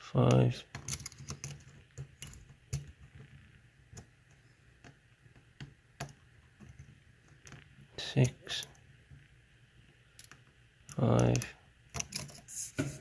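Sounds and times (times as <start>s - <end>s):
lock pick clicking on pins: 0.7s - 2.9s.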